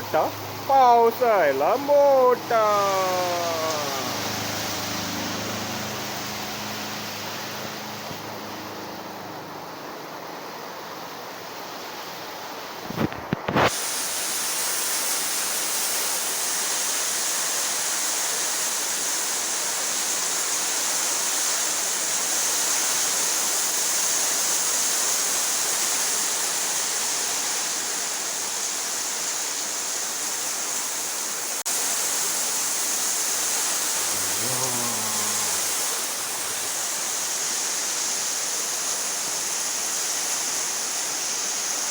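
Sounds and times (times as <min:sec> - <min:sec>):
heavy rain pouring: 0:00.0 - 0:08.5, 0:33.6 - 0:37.6.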